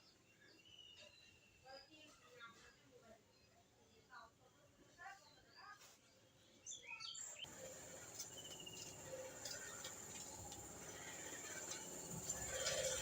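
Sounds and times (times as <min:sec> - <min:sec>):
bird chirps: 0:06.6 - 0:13.0
bird trill: 0:06.8 - 0:13.0
hiss with insect-like buzz: 0:07.5 - 0:13.0.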